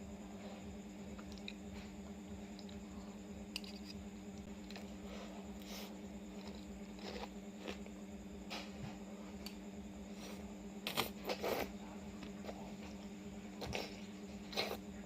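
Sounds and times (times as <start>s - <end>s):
steady low hum: 0.0s - 15.0s
mouth eating noises: 13.6s - 14.8s.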